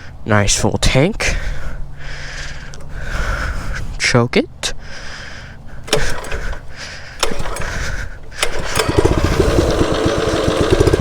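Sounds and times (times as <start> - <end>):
small engine pull-start: 5.8 - 11.0
small engine running: 5.9 - 11.0.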